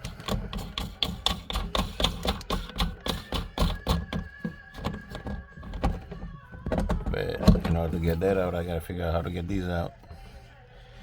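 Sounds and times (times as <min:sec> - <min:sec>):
hand tools clicking and knocking: 0:00.0 - 0:08.1.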